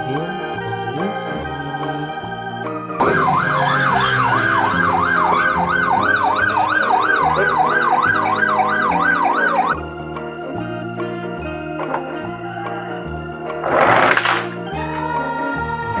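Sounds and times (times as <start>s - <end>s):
background music: 0.0s - 16.0s
electronic siren wailing: 3.0s - 9.8s.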